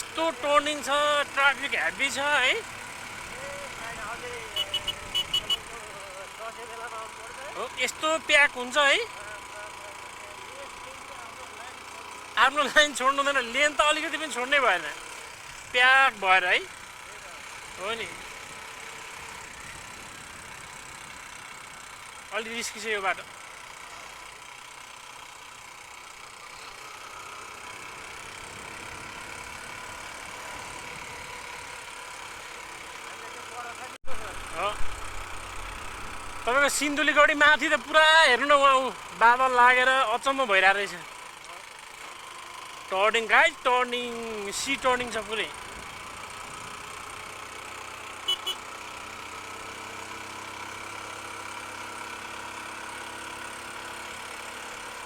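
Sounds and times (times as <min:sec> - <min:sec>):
road and wind noise: 0:00.0 - 0:05.9, 0:16.7 - 0:22.3, 0:27.8 - 0:32.9, 0:34.0 - 0:38.0, 0:45.5 - 0:54.8
motorcycle engine running: 0:00.0 - 0:55.0
motorcycle horn toots: 0:04.4 - 0:05.9, 0:48.2 - 0:48.8.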